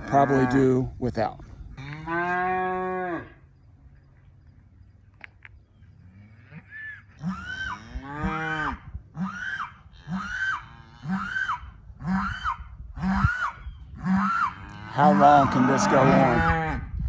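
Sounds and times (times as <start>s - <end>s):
calves bawling: 0.0s - 1.0s, 6.1s - 16.8s.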